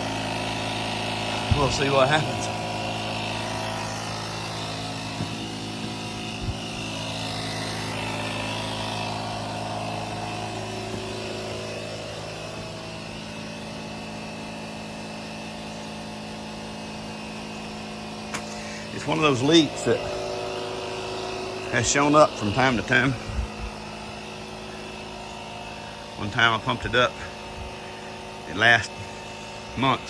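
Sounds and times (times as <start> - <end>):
air compressor motor hum: 0.0 - 30.0.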